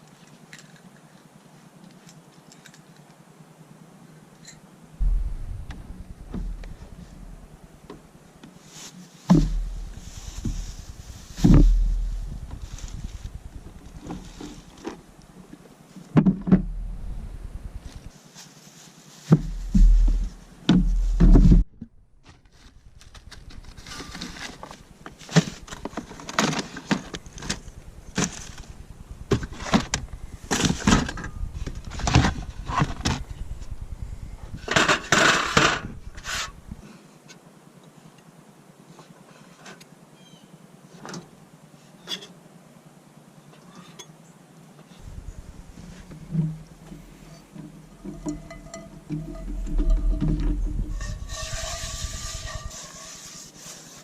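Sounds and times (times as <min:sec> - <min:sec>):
wind buffeting microphone: 0:05.0 - 0:08.3, 0:09.4 - 0:14.8, 0:16.6 - 0:18.1, 0:27.2 - 0:35.0, 0:35.7 - 0:36.8, 0:45.0 - 0:52.8.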